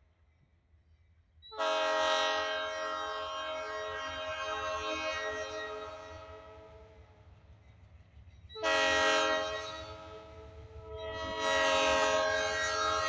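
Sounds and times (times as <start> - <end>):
low train rumble: 0.0 - 13.0
locomotive air horn blasts: 1.6 - 6.7, 8.6 - 13.0.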